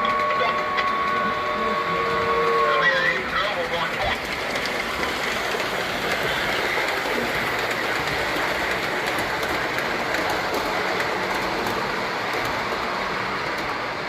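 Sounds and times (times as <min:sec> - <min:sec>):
model train wheels and motors whirring: 0:00.0 - 0:14.0.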